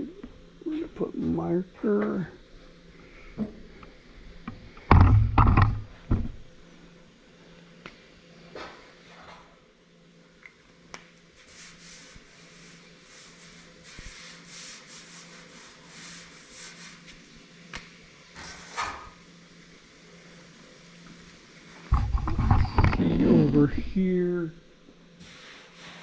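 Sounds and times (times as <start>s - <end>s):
rubbing on sheet steel: 11.4s - 17.2s.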